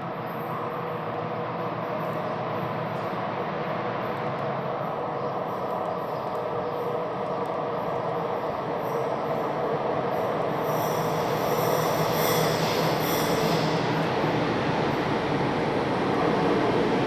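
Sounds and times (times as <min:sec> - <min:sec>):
diesel locomotive engine drone: 0:00.0 - 0:17.0
high wheel squeal: 0:10.6 - 0:14.0.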